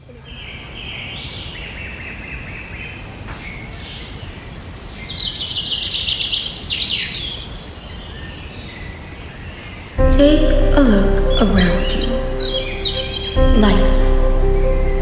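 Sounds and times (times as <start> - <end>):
low background rumble: 10.0 - 15.0.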